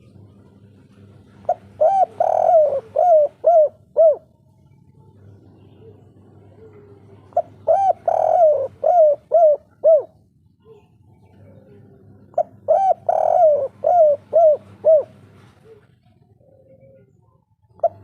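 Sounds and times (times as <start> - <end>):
dove cooing: 0.0 - 18.0.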